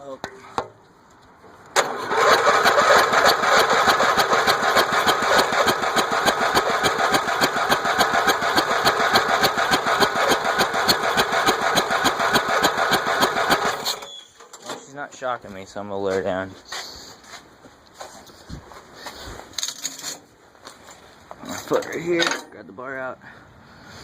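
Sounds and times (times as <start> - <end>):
electric starter cranking engine: 1.8 - 14.0.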